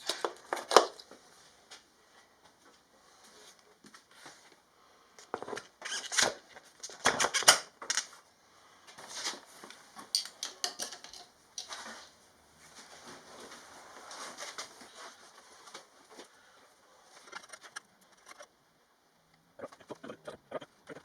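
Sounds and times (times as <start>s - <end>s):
metal tools clinking and knocking: 10.1s - 11.8s.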